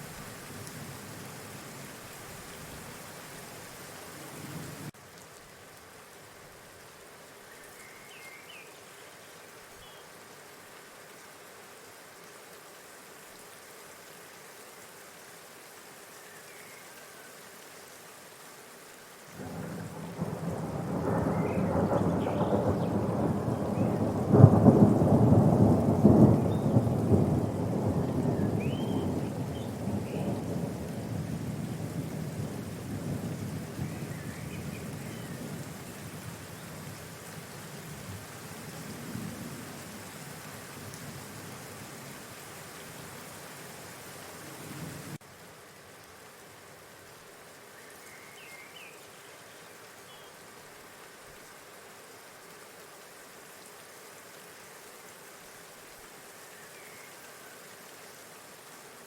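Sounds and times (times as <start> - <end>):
faint steady hiss: 0.0 - 59.0.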